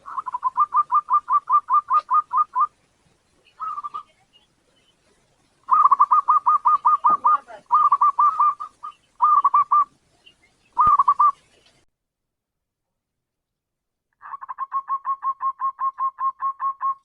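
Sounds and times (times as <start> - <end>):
dove cooing: 0.0 - 2.8, 3.5 - 4.2, 5.6 - 11.8, 14.2 - 17.0.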